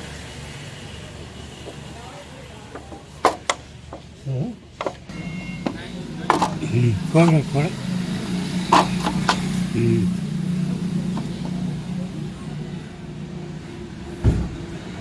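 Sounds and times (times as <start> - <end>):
vehicle engine running: 5.1 - 15.0.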